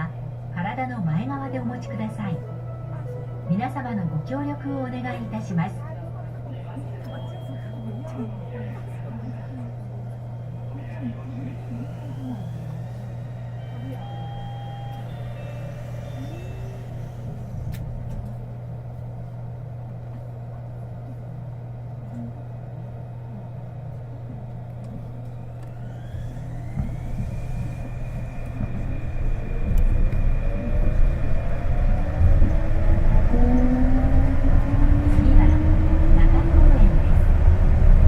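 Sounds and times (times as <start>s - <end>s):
train cabin low hum: 0.0s - 38.0s
train rumble: 0.0s - 38.0s
traction motor whine: 9.9s - 18.3s, 24.8s - 38.0s.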